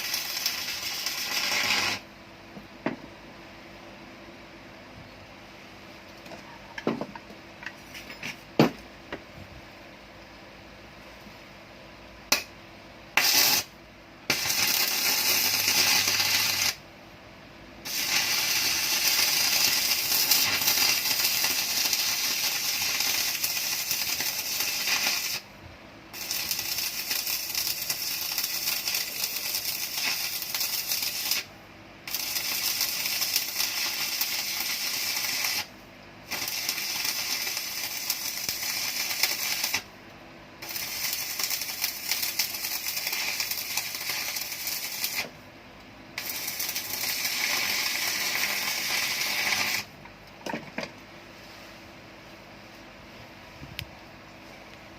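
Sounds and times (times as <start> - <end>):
welding arc crackling and sizzling: 0.0 - 2.1, 13.2 - 16.8, 17.8 - 25.5, 26.1 - 31.5, 32.1 - 39.9, 40.6 - 45.4, 46.2 - 50.0.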